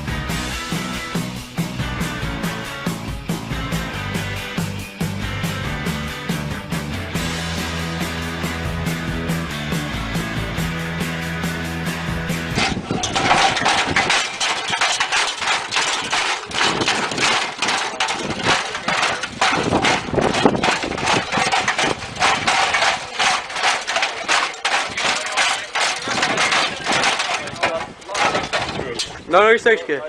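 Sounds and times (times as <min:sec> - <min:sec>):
machine clattering and knocking: 0:12.6 - 0:29.4.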